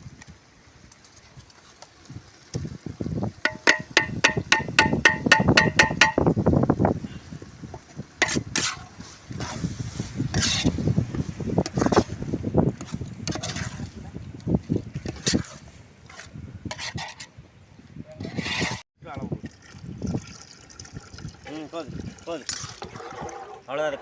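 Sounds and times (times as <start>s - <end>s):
metal utensil tapping metal pot: 3.4s - 6.2s
scraping and stirring in pot: 8.2s - 17.4s, 18.2s - 18.8s, 22.0s - 24.0s.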